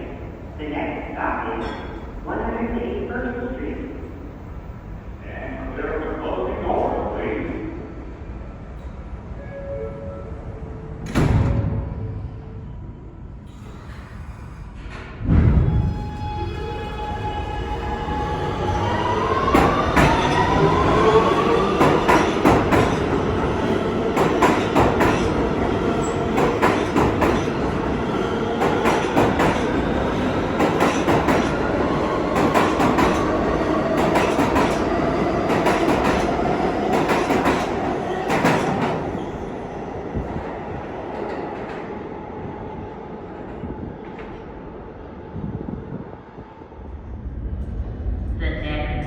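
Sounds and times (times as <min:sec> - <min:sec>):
wheels clacking on rail joints: 0:24.2 - 0:27.7.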